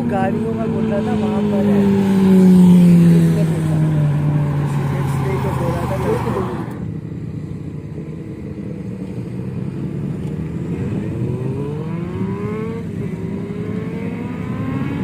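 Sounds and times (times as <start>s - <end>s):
motorcycle accelerating: 0.0s - 15.0s.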